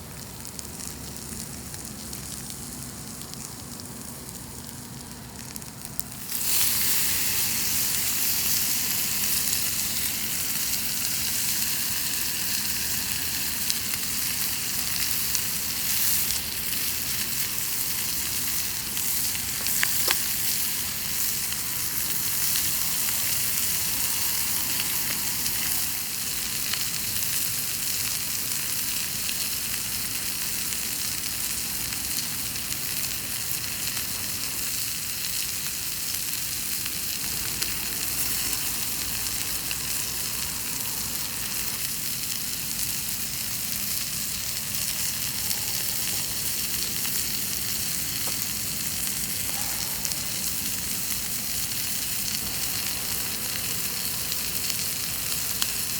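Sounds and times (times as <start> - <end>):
campfire: 0.0 - 55.9
chicken sizzling in a skillet: 0.0 - 55.9.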